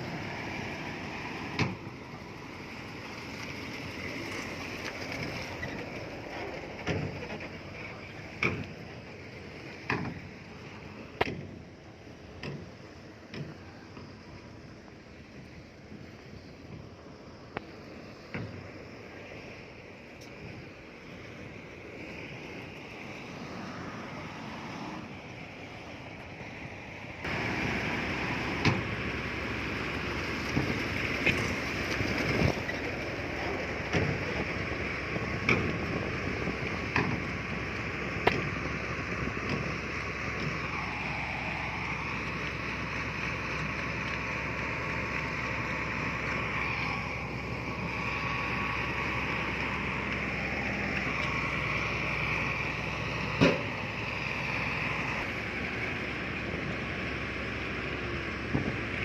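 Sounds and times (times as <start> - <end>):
heavy machinery diesel engine: 0.0 - 59.0.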